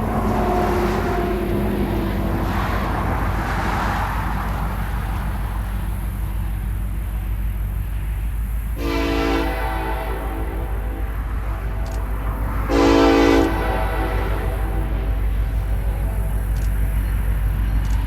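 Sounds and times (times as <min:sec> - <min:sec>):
locomotive horn blast: 0:00.0 - 0:04.2, 0:08.8 - 0:17.7
train rumbling: 0:00.0 - 0:18.0.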